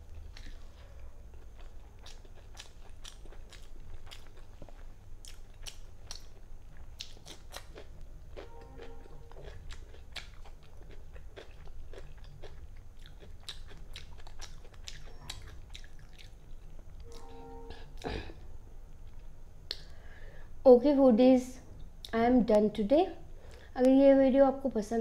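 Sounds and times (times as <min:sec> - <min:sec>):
close chewing and crunching: 0:00.0 - 0:17.3
steady low hum: 0:00.0 - 0:25.0
brief humming tone: 0:08.4 - 0:09.4, 0:17.0 - 0:18.6.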